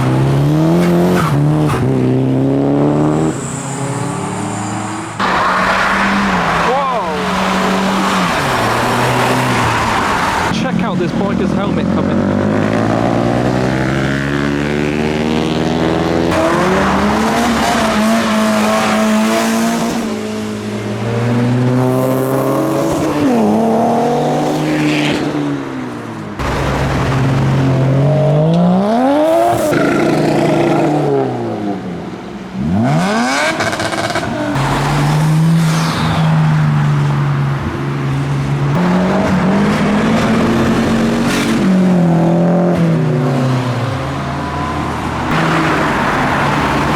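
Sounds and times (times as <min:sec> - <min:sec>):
cars driving past revving: 0:00.0 - 0:46.9.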